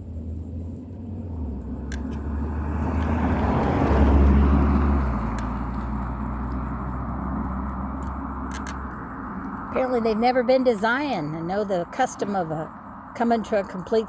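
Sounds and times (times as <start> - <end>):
car driving past: 0.0 - 8.9.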